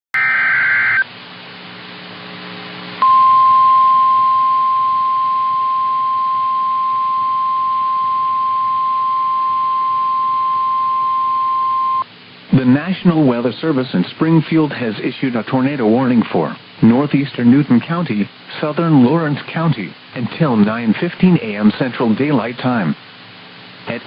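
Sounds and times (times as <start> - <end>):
high steady alarm tone: 0.2 - 1.0, 3.0 - 12.0
radio hiss and hum: 0.2 - 3.5, 11.8 - 24.0.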